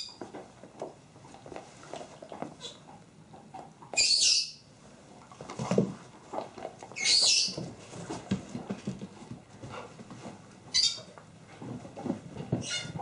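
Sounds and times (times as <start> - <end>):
dogs moving about: 5.2 - 13.0.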